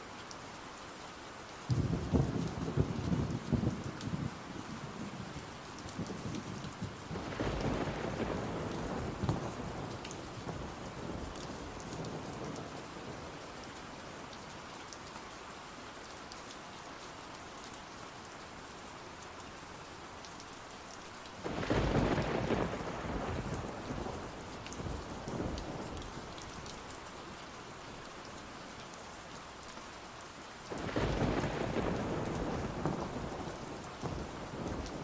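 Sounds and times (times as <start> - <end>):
steady rain falling: 0.0 - 35.0
thunder rolling: 21.4 - 24.3, 30.8 - 35.0.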